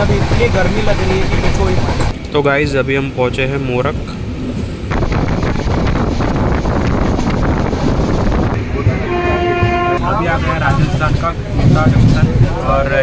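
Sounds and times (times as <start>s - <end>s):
moving train wind rush: 0.0s - 13.0s
train horn: 8.8s - 10.2s.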